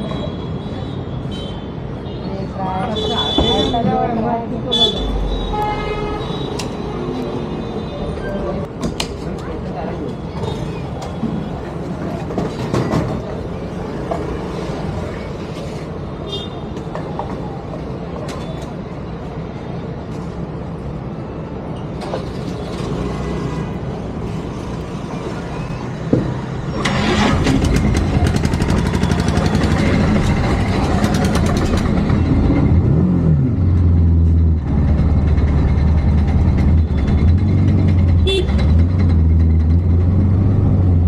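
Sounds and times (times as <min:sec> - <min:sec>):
traffic noise: 0:00.0 - 0:41.0
motorcycle engine starting and revving: 0:26.6 - 0:41.0.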